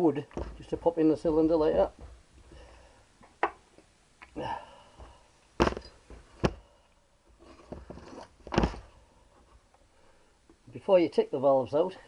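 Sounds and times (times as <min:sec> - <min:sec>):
tools knocking on metal: 0:00.3 - 0:02.7.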